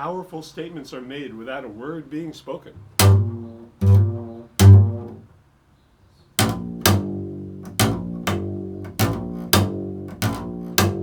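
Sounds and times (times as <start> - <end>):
plucked string instrument: 2.8 - 5.2, 6.4 - 11.0.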